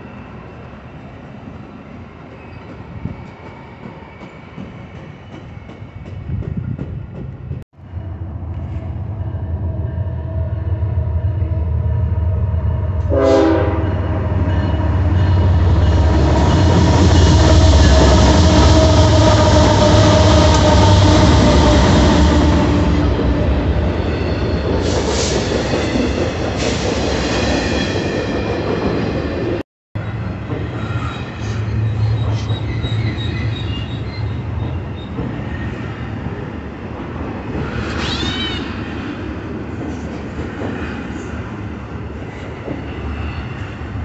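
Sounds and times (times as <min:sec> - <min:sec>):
freight train wheels rumbling: 0:01.4 - 0:44.0
wheel squeals: 0:30.6 - 0:35.2.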